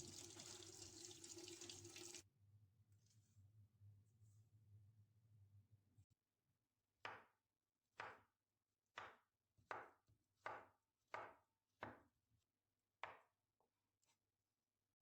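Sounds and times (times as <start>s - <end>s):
knife chopping on cutting board: 8.9s - 12.0s.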